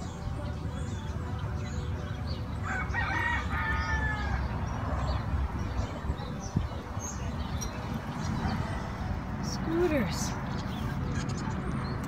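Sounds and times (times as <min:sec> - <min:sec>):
rooster crowing: 0:02.6 - 0:04.6.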